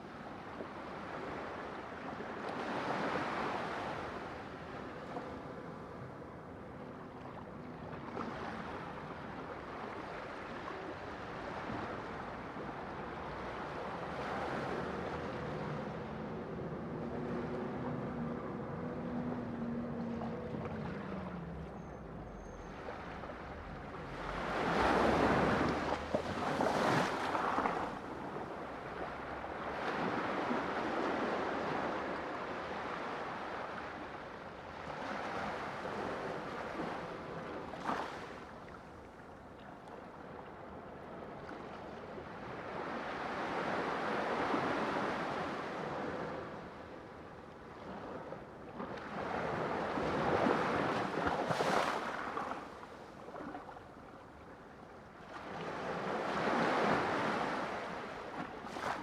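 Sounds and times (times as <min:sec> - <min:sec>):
sea waves breaking: 0:09.7 - 0:39.2, 0:42.4 - 0:54.5, 0:55.2 - 0:59.0.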